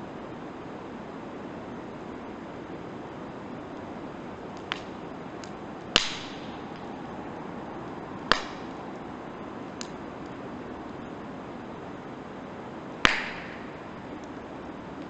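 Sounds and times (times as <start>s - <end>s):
campfire crackling and hissing: 0.0s - 15.0s
loud sharp pops of fire: 4.5s - 6.9s, 8.2s - 8.9s, 13.0s - 14.4s.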